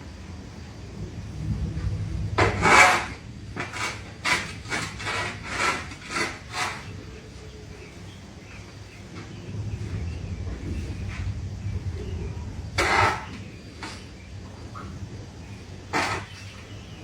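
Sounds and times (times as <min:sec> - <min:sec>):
hand tool rasping strokes: 0:02.4 - 0:06.9.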